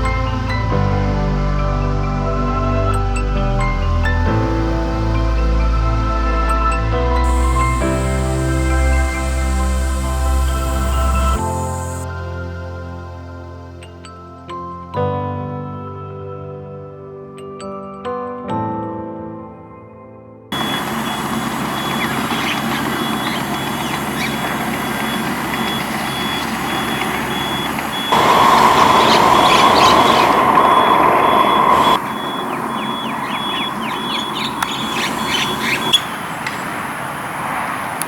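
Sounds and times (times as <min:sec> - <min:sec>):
vehicle noise: 0:00.0 - 0:12.0, 0:20.6 - 0:38.0
short high chirps: 0:20.6 - 0:36.1
repeating high beep: 0:24.8 - 0:28.2.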